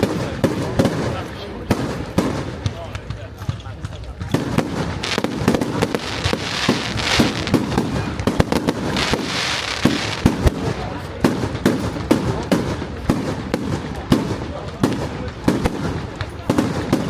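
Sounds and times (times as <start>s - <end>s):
fireworks bangs: 0.0s - 17.0s
fireworks hissing crackle: 0.0s - 17.0s.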